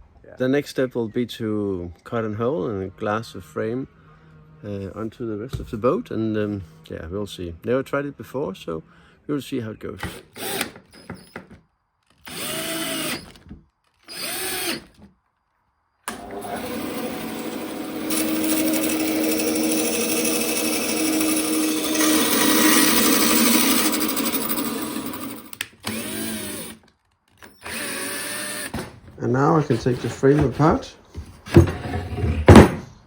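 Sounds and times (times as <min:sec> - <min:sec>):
power drill motor: 0:10.0 - 0:11.5, 0:12.1 - 0:15.1, 0:16.1 - 0:28.9.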